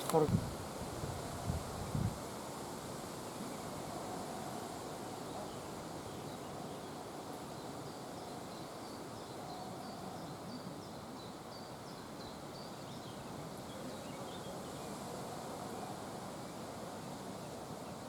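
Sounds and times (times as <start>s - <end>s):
wind rustling leaves: 0.0s - 18.0s.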